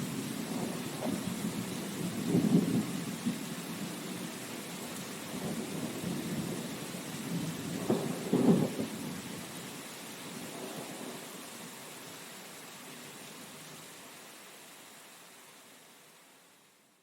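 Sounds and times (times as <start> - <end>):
rumbles of thunder: 0.0 - 4.0, 5.3 - 9.4
rain hiss: 0.0 - 17.0.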